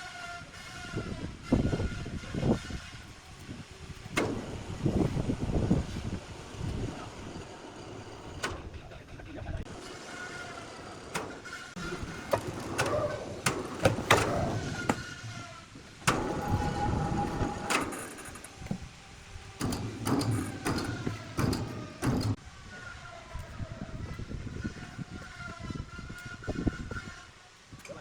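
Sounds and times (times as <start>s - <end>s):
heavy machinery humming: 3.7s - 23.4s
knocks and clanks: 4.1s - 6.9s, 9.8s - 18.9s, 19.5s - 22.4s.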